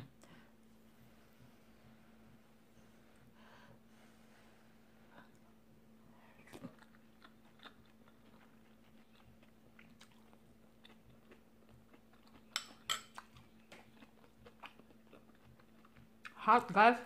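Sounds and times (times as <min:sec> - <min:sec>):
person chewing food: 0:06.2 - 0:16.4.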